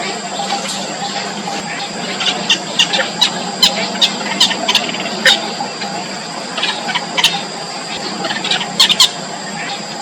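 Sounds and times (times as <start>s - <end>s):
background hiss and hum: 0.0s - 10.0s
nestlings begging squeaks: 0.4s - 10.0s.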